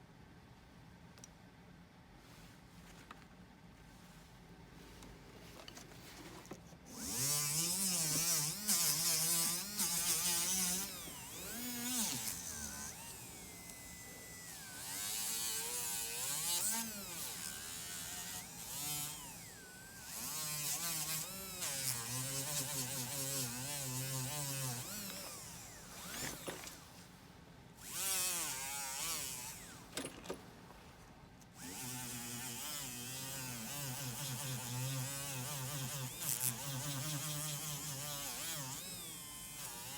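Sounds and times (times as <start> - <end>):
electric rotary tool buzzing: 6.9 - 26.9, 27.8 - 30.2, 31.6 - 39.9.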